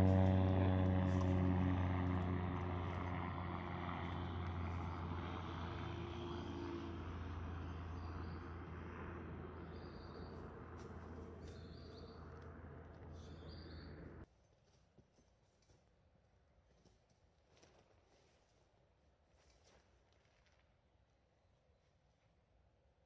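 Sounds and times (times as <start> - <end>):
low engine drone: 0.0 - 14.3
bird chirps: 11.4 - 12.2, 13.1 - 14.0.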